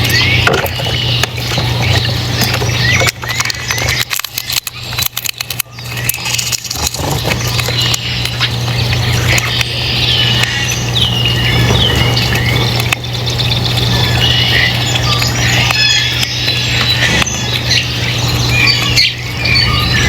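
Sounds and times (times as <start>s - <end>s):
birds chirping: 0.0s - 20.0s
low hum: 0.0s - 20.0s.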